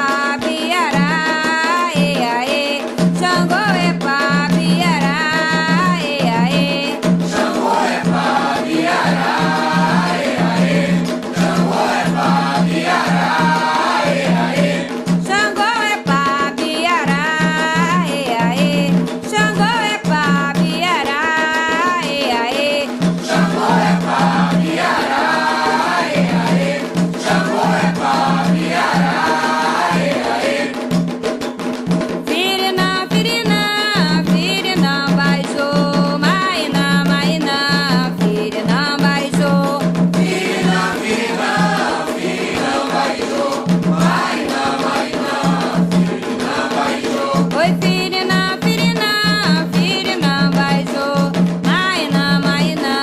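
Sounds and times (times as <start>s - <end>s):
steady drum beat: 0.0s - 53.0s
steady percussion: 0.0s - 53.0s
chorus of voices singing: 6.7s - 15.2s, 23.2s - 31.0s, 39.5s - 48.4s.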